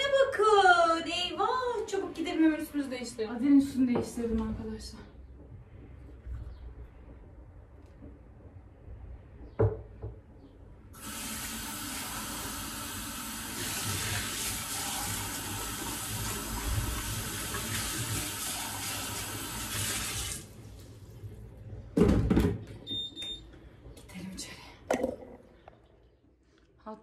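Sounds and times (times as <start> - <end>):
tap water running into sink: 11.0 - 20.9.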